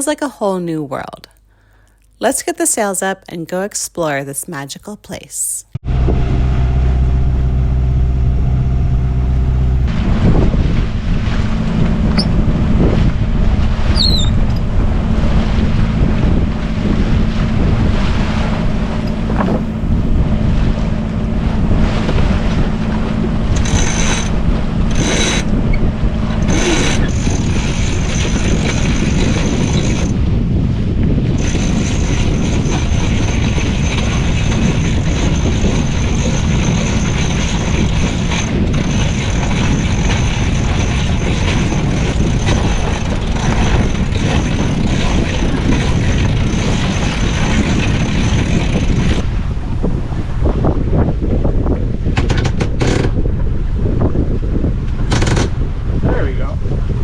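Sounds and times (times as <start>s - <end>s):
boat engine drone: 5.7s - 57.0s
boat running noise: 5.7s - 57.0s
wind buffeting microphone: 5.8s - 57.0s.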